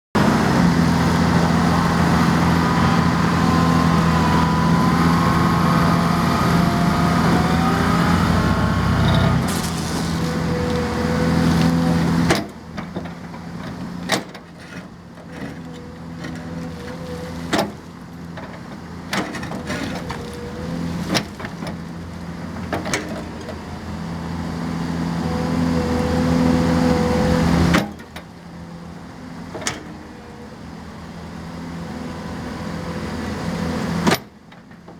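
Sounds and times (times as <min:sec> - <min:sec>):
loud steady machine hum: 0:00.2 - 0:12.6.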